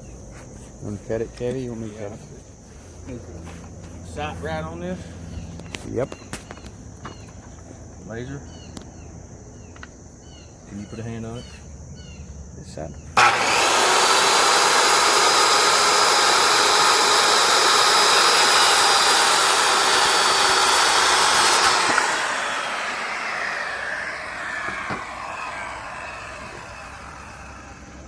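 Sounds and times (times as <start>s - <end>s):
circular saw whining: 13.2s - 28.0s.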